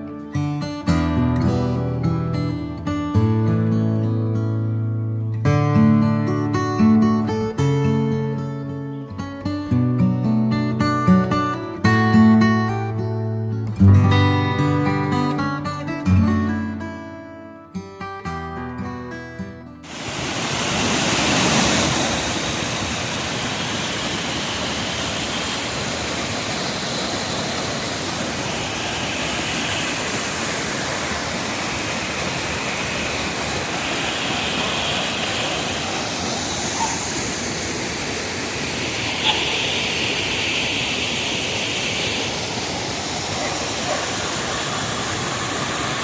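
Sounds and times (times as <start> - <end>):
acoustic guitar music: 0.0 - 19.9
waterfall rushing and splashing: 19.9 - 46.0.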